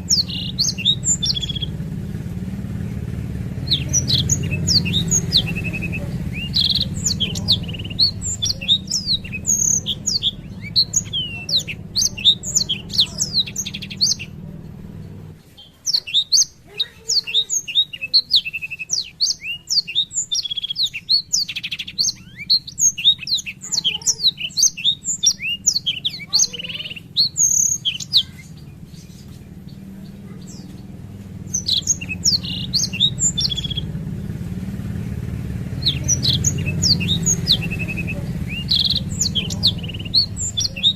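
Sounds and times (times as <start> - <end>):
low rumble: 0.0 - 15.4
canary singing: 0.0 - 40.9.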